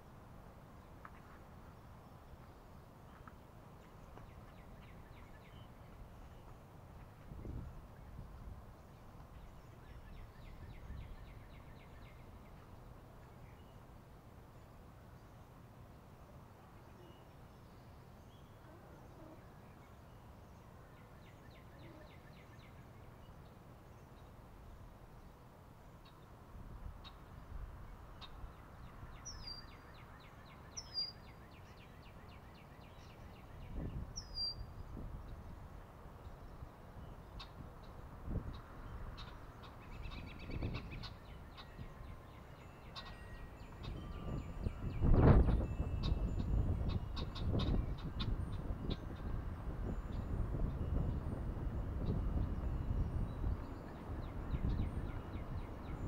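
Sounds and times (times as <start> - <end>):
low background noise: 0.0 - 56.0
faint bird chirps: 16.6 - 24.4, 28.1 - 35.5, 36.2 - 51.3
bird singing down-slurred notes: 28.2 - 35.4, 36.2 - 51.4.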